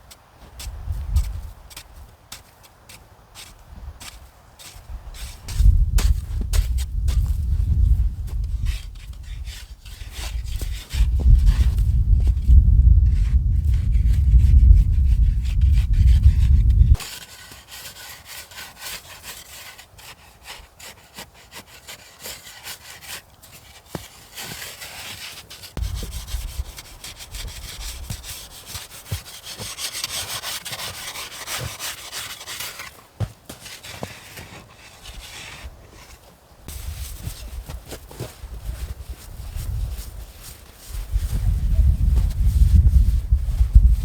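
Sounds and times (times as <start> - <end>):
rough scraping and rubbing: 13.7 - 19.7, 24.0 - 44.0.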